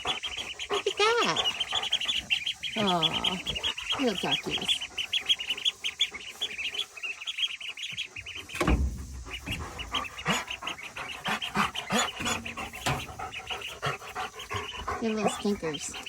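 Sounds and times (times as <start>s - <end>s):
ducklings peeping: 0.0s - 16.0s.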